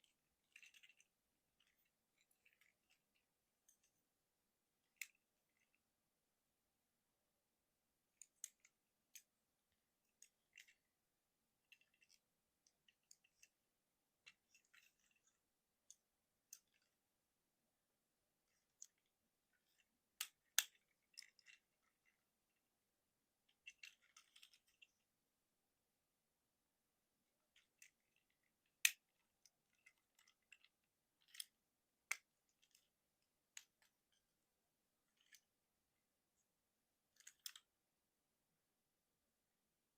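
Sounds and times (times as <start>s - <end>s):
plastic toy parts clicking: 0.0s - 4.0s, 4.8s - 5.8s, 8.1s - 9.4s, 10.0s - 10.9s, 11.6s - 13.6s, 14.2s - 17.0s, 18.4s - 22.2s, 23.4s - 25.0s, 27.4s - 34.3s, 35.0s - 35.5s, 37.1s - 37.7s.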